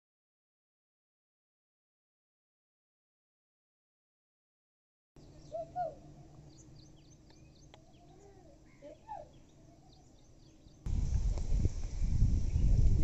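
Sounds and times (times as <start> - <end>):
birds chirping and calling: 5.2 - 10.9.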